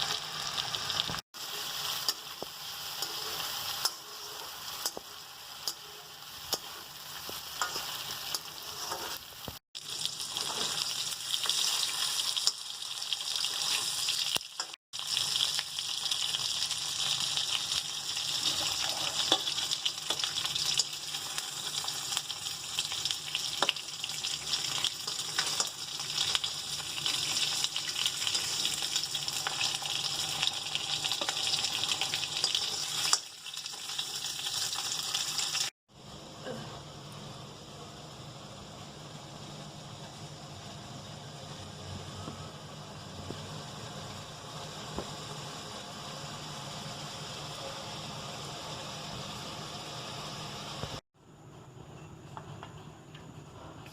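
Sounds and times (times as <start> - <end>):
food sizzling in a pan: 0.0 - 51.0
utensil scraping a pan: 7.6 - 9.3.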